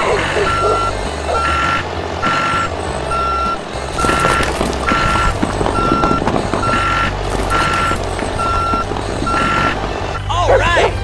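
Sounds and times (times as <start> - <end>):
reversing alarm beeping: 0.0 - 10.9
low motor hum: 0.0 - 11.0
rattling clatter: 3.6 - 10.3.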